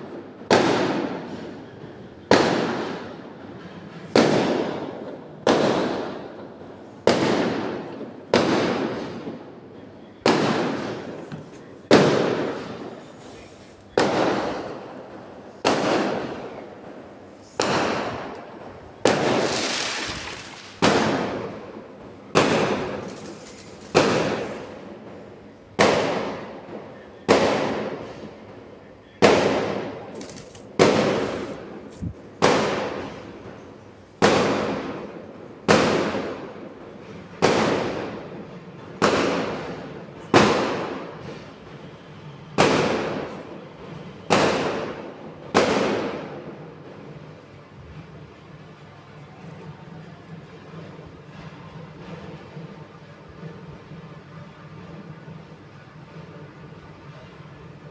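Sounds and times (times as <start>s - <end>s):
firecrackers banging: 0.0s - 48.2s.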